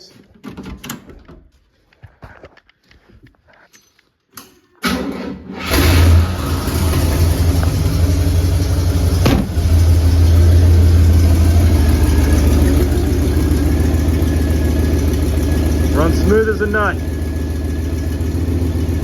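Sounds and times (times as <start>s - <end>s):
car engine cranking and idling: 4.8s - 19.0s.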